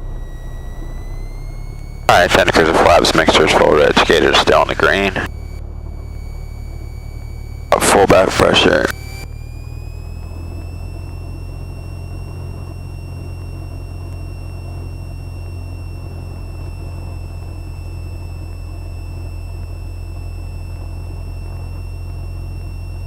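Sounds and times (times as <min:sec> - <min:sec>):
faint thin whine: 0:00.0 - 0:23.0
propeller plane engine drone: 0:00.0 - 0:23.0.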